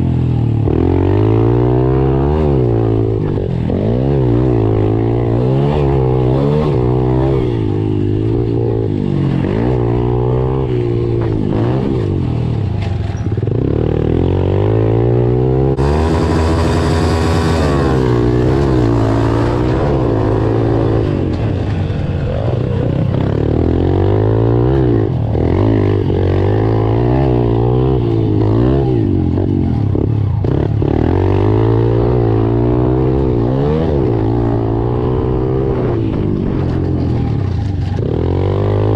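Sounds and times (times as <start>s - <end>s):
pit bike engines revving: 0.0s - 38.9s.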